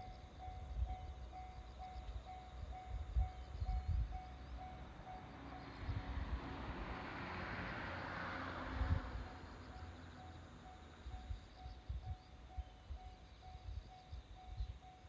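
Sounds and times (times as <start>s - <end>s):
crossing warning bell ringing: 0.0s - 7.7s, 9.2s - 15.0s
crickets chirping: 0.0s - 15.0s
diesel train passing: 0.0s - 15.0s.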